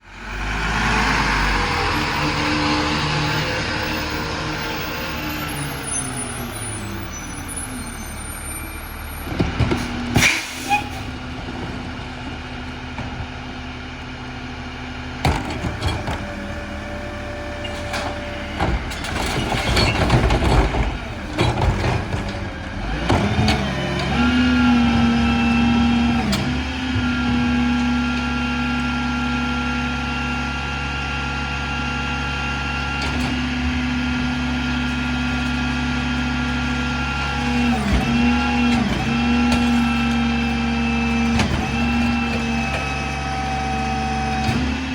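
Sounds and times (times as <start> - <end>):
diesel engine running: 0.0 - 44.9
engine whine: 0.0 - 44.9.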